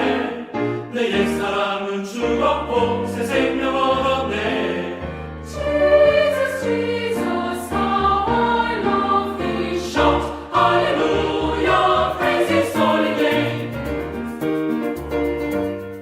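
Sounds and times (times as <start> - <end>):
choir singing worship song: 0.0 - 14.3.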